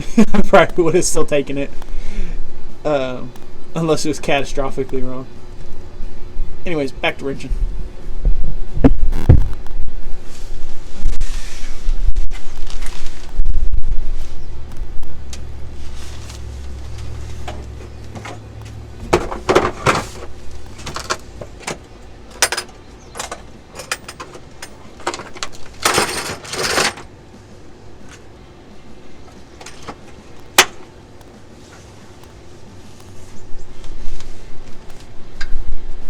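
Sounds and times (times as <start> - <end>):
hand tools and metal parts clinking: 16.1 - 27.1, 29.2 - 30.9.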